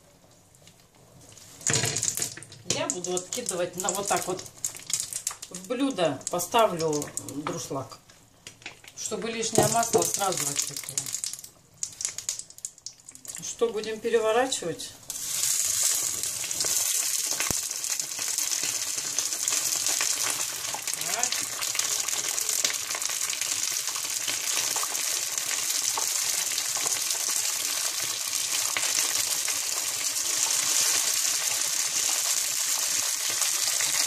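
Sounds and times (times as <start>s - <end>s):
food sizzling in hot oil: 1.5s - 7.5s, 9.4s - 13.5s, 15.0s - 34.0s
oil popping and spitting: 9.7s - 13.5s.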